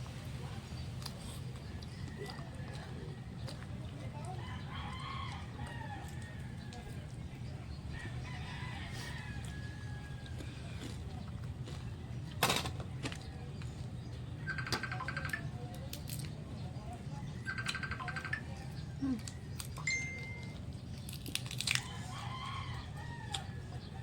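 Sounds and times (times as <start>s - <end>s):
chewing crispy food: 0.0s - 24.0s
bird trilling: 14.4s - 15.5s, 17.4s - 18.8s.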